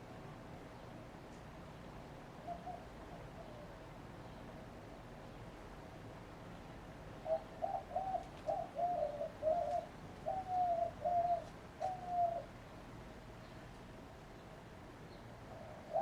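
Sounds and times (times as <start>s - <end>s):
dove cooing: 2.4s - 3.9s, 7.2s - 12.6s, 15.4s - 16.0s.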